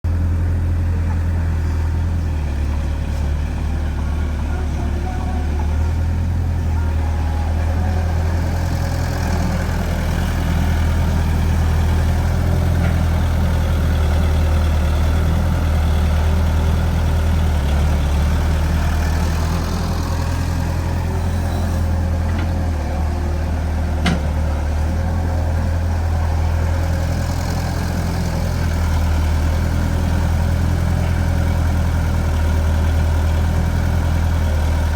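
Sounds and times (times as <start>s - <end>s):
excavator diesel engine running: 0.0s - 34.9s
excavator digging soil: 17.6s - 34.9s.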